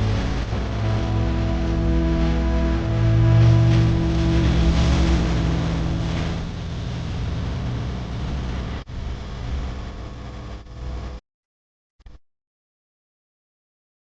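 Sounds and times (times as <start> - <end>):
tractor diesel engine running: 0.0 - 8.9.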